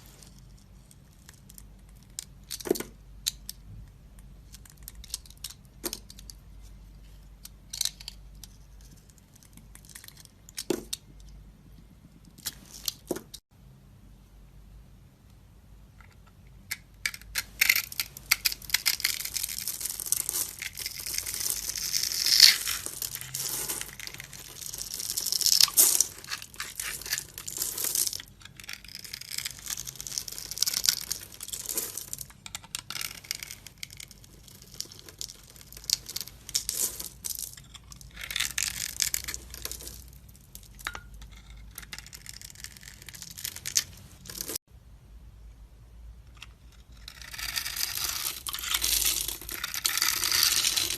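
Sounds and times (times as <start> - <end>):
knife scraping soap: 41.2 - 43.6, 46.5 - 50.9.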